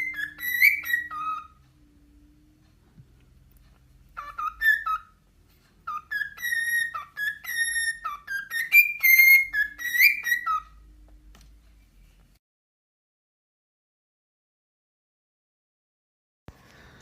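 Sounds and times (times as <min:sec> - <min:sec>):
pet bird whistling: 0:00.0 - 0:01.6, 0:04.1 - 0:05.2, 0:05.8 - 0:10.8.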